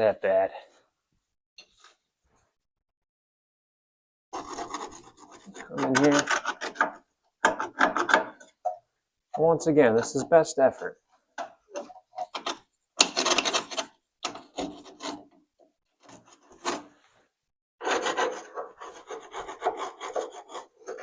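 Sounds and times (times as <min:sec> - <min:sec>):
hand tool scraping metal: 0:04.4 - 0:08.5, 0:17.8 - 0:21.0.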